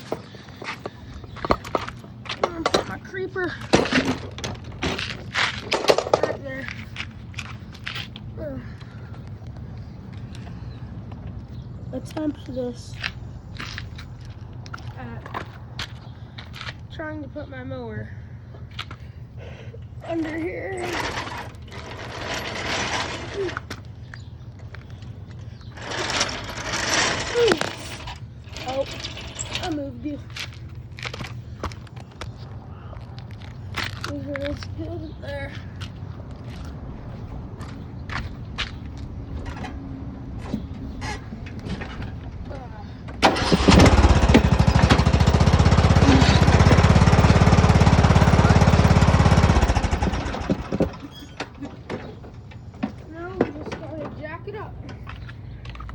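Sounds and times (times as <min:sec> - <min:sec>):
lawn mower scraping and rolling: 0:00.0 - 0:08.2, 0:20.2 - 0:32.3, 0:43.1 - 0:55.9.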